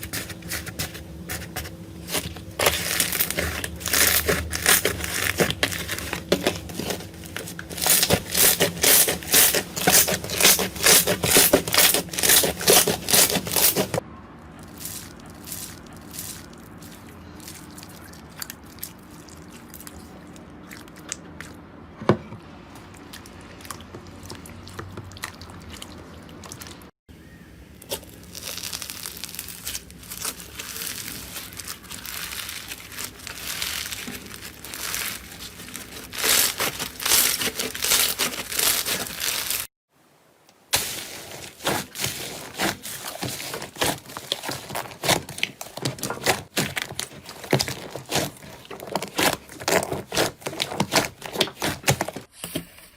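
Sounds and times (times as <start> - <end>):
slime crackling and popping: 0.0 - 14.0, 27.8 - 39.7, 40.7 - 52.3.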